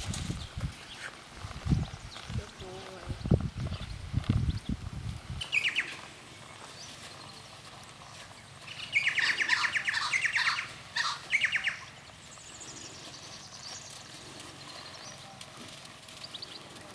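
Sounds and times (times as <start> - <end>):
faint high bird chirps: 5.4 - 7.6, 8.6 - 14.1
birds chattering: 5.4 - 16.9.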